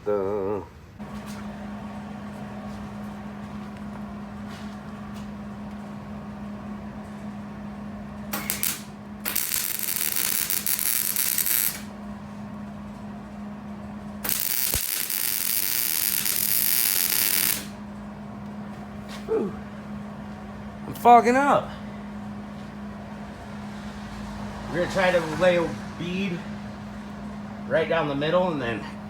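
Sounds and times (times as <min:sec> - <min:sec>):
steady low hum: 0:00.0 - 0:29.0
welder arc crackling: 0:01.0 - 0:18.6.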